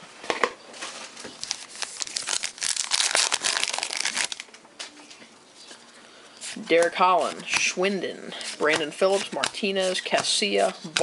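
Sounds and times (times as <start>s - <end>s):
card pack wrapper crinkling and tearing: 1.3s - 4.5s.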